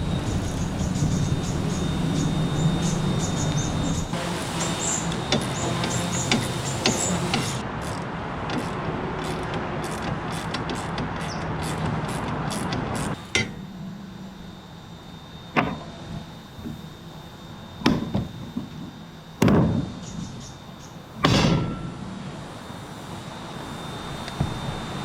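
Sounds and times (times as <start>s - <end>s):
sharp knocks and bangs: 19.4s - 20.0s, 21.2s - 22.1s.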